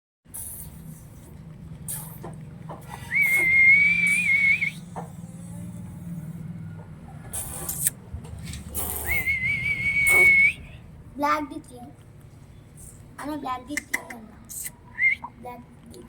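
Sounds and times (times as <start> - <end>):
person whistling long notes: 3.1 - 4.8, 9.1 - 10.6.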